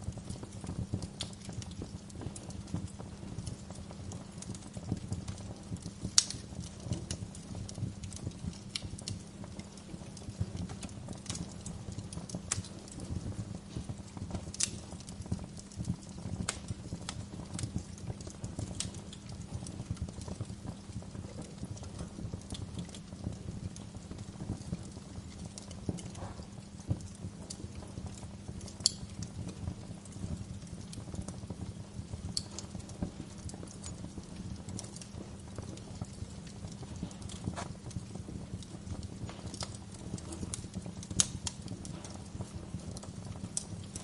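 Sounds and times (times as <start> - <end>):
wood fire crackling: 0.0 - 44.0.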